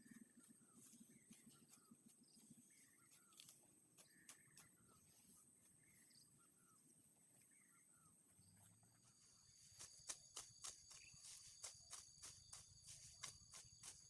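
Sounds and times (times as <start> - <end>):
sickle cutting grass: 9.6 - 14.0.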